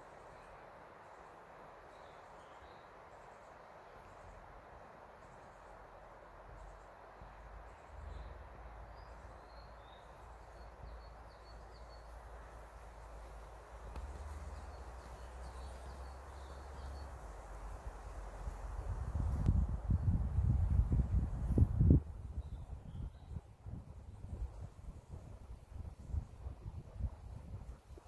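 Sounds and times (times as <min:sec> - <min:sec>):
steady background hiss: 0:00.0 - 0:28.0
small birds chirping: 0:06.5 - 0:18.6, 0:22.4 - 0:23.5.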